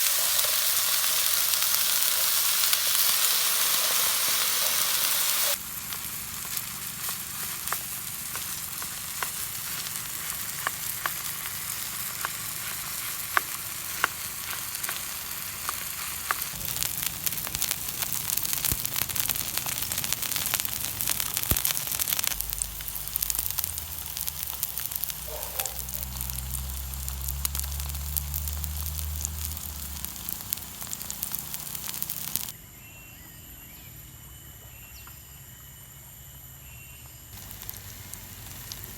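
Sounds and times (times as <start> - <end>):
food sizzling in a pan: 0.0 - 32.6, 37.4 - 38.9
faint insect chirring: 16.6 - 32.6, 35.0 - 38.9.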